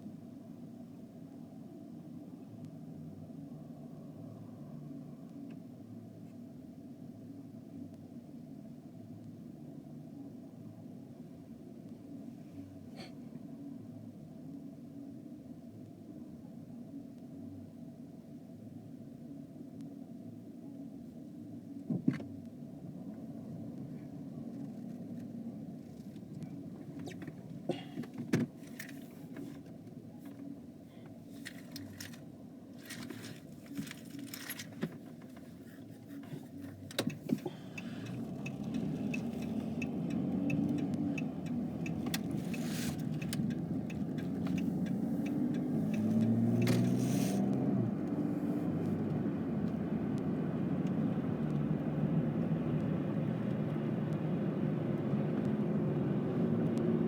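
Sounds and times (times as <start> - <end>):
road and engine noise: 0.0 - 57.0.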